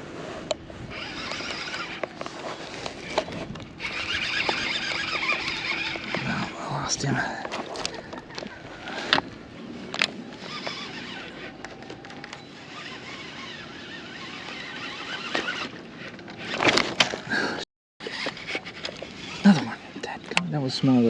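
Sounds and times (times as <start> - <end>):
outdoor noise: 0.0 - 21.0
fishing gear clicks and knocks: 1.3 - 12.5.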